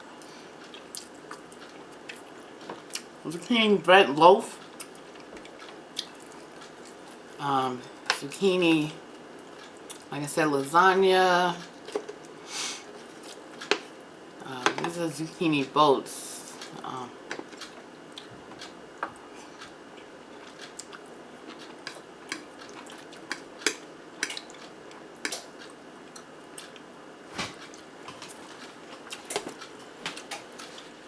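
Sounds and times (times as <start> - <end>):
person chewing food: 0.1 - 3.2, 4.6 - 7.4, 9.1 - 10.1, 11.7 - 14.3, 16.6 - 31.0.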